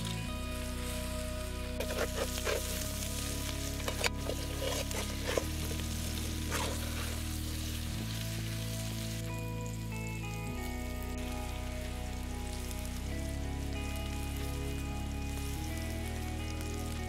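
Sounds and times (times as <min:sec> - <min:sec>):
food sizzling in hot oil: 0:00.0 - 0:09.9, 0:10.6 - 0:17.0
spatula scraping and stirring: 0:01.8 - 0:07.4.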